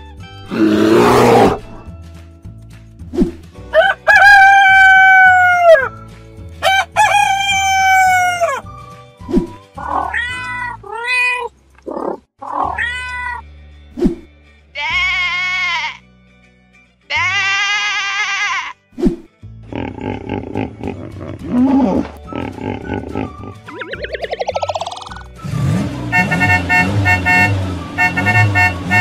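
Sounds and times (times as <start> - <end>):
background music: 0.0 - 29.0
rooster crowing: 3.7 - 5.9, 6.6 - 8.6
sheep bleating: 14.8 - 16.0, 17.1 - 18.8.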